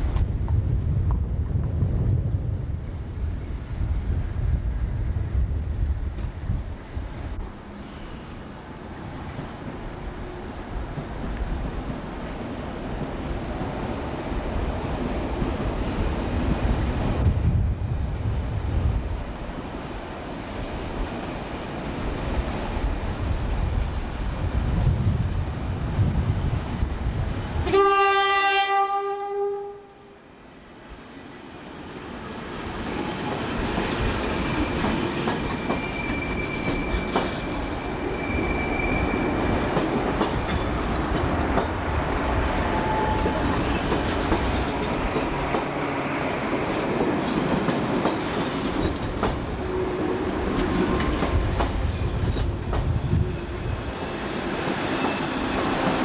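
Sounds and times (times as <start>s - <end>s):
rail clicks: 0.0s - 1.8s, 32.5s - 56.0s
train running noise: 0.0s - 28.9s, 30.6s - 56.0s
train horn: 27.6s - 30.3s, 42.6s - 43.5s.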